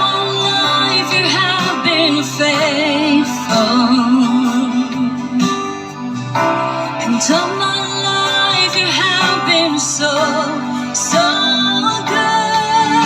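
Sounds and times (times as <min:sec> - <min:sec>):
worship song through speaker: 0:00.0 - 0:13.0.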